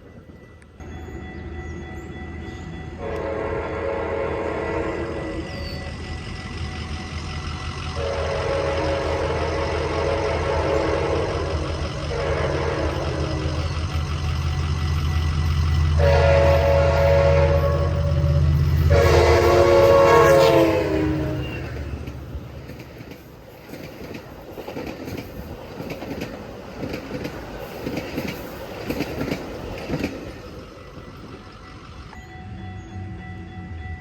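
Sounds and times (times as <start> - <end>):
locomotive engine drone: 0.0 - 34.0
train air horn chord: 3.0 - 5.5, 7.9 - 13.5, 15.9 - 21.8
train wheels clickety-clack: 5.7 - 32.2.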